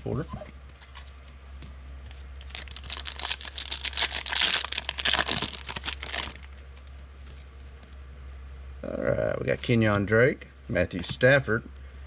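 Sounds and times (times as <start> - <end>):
steady low hum: 0.0 - 12.0
wrapper crinkling and tearing: 2.4 - 7.5.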